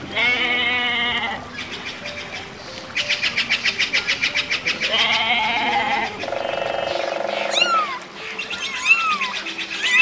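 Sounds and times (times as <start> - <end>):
sheep bleating: 0.1 - 1.4, 4.9 - 6.2.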